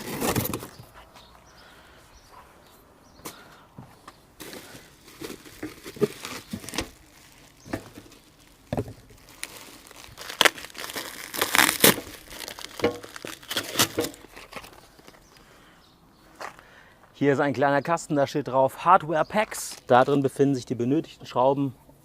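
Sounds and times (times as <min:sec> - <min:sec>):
cardboard scrapes and knocks: 0:00.0 - 0:00.8
packaging crinkling and rustling: 0:00.0 - 0:00.8, 0:04.4 - 0:15.4.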